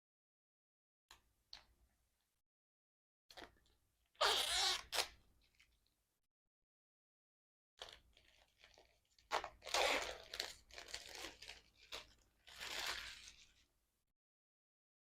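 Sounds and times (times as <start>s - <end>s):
packaging rustling and tearing: 7.8s - 13.6s.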